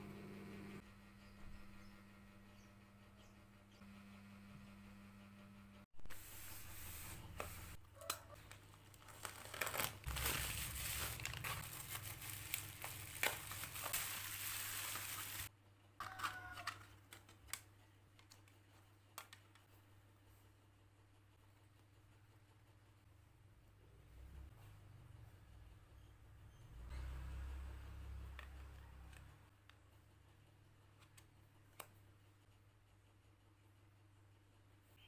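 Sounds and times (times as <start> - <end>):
packaging torn and crinkled by hand: 8.0 - 17.6.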